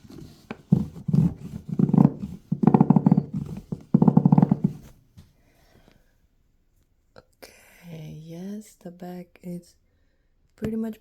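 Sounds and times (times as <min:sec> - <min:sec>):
toothbrush scrubbing plastic: 0:00.0 - 0:04.8.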